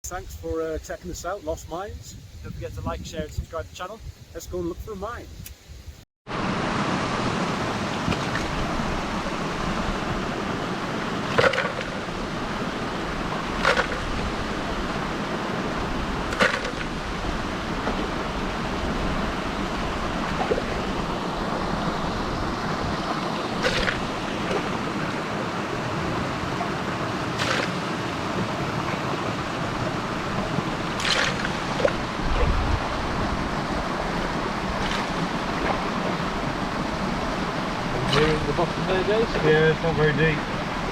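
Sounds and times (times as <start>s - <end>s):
running water rushing: 6.3s - 40.9s
sharp knock or splash: 11.3s - 12.0s, 13.6s - 14.1s, 16.3s - 17.0s, 23.6s - 24.7s, 27.4s - 27.9s, 31.0s - 32.6s, 34.8s - 35.8s.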